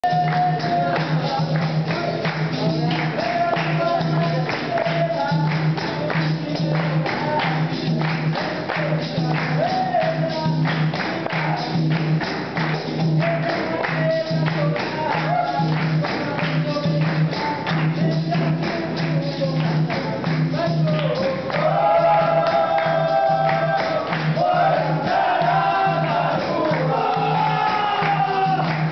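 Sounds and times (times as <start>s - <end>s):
person singing lead: 0.0s - 7.7s, 13.3s - 28.9s
fast percussion with jingles: 0.0s - 28.9s
group singing in chorus: 21.5s - 28.9s.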